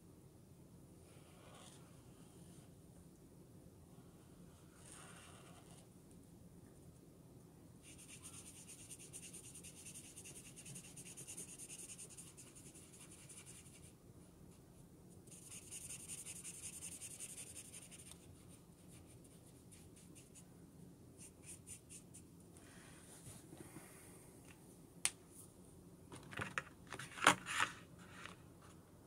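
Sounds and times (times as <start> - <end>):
marker scratching on paper: 1.3 - 1.8, 4.8 - 5.8, 7.8 - 13.9, 15.3 - 20.4, 21.2 - 22.2.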